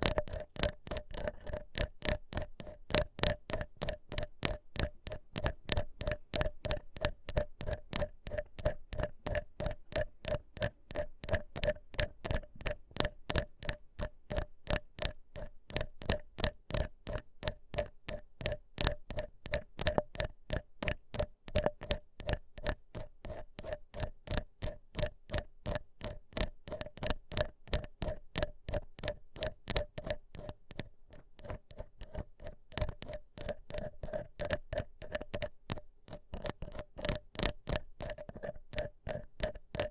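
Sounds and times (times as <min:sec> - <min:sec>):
ear pick scratching: 0:00.0 - 0:02.7.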